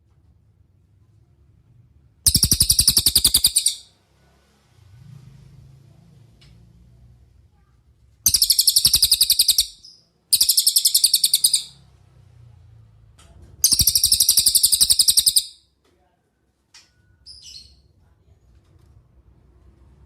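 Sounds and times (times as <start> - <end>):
songbird trilling: 2.3 - 3.9, 8.3 - 11.8, 13.6 - 15.6.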